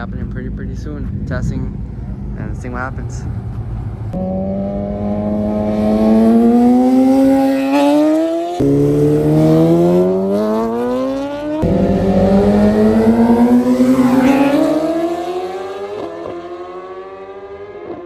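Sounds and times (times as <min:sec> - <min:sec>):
vehicle engine accelerating: 0:00.0 - 0:18.0.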